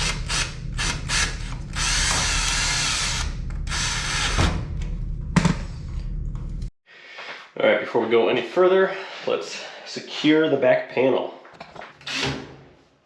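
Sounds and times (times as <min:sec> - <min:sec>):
drill driving screws: 0:00.0 - 0:04.6.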